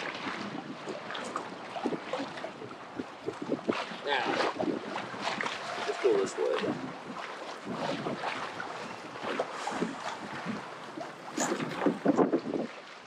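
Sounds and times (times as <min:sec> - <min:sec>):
wind buffeting microphone: 0:00.0 - 0:12.8
water splashing against kayak hull: 0:00.0 - 0:13.0.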